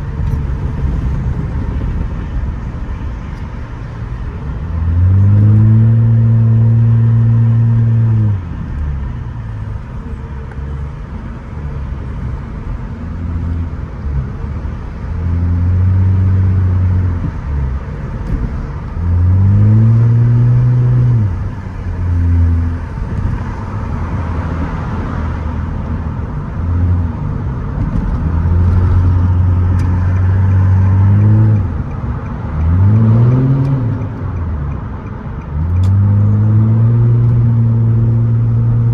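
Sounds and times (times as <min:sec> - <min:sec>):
car exhaust revving: 0:00.0 - 0:10.0, 0:13.1 - 0:25.8, 0:28.0 - 0:34.1.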